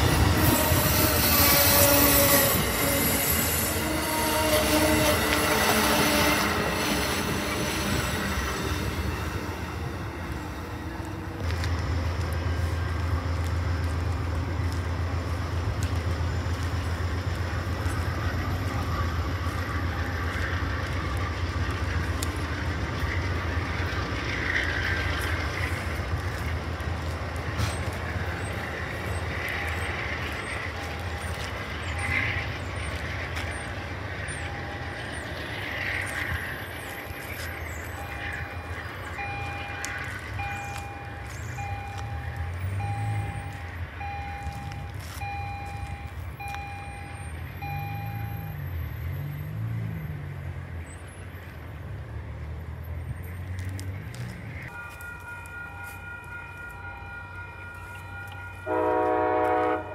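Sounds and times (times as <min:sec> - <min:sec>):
train rumbling on rails: 0:00.0 - 0:59.9
reversing beeper: 0:33.6 - 0:49.2, 0:54.7 - 0:59.8.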